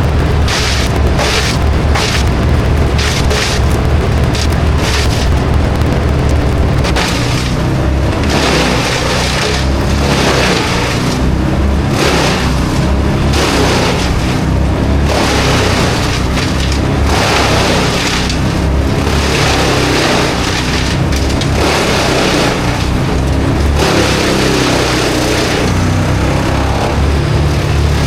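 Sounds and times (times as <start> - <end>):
heavy engine running: 0.0 - 28.0
rushing noise: 0.0 - 28.0.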